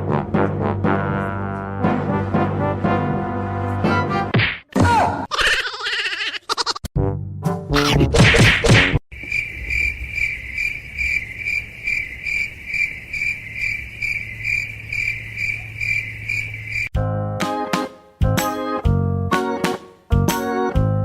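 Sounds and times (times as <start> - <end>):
cricket chirping: 9.1 - 17.0.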